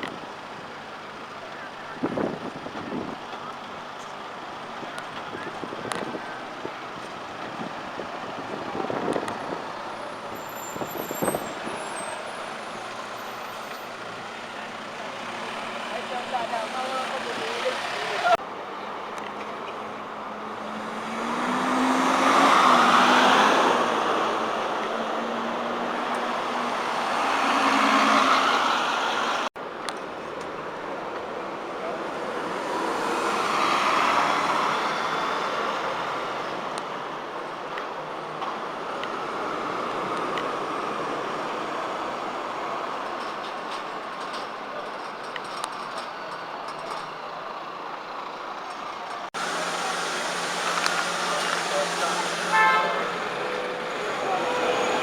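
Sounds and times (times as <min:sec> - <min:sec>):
bus and street traffic: 0:00.0 - 0:55.0
vehicle passing: 0:20.4 - 0:29.5.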